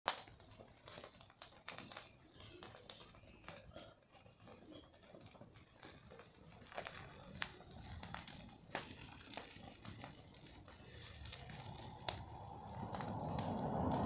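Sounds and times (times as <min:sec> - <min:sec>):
bonfire crackling with snaps and pops: 0:00.1 - 0:14.0.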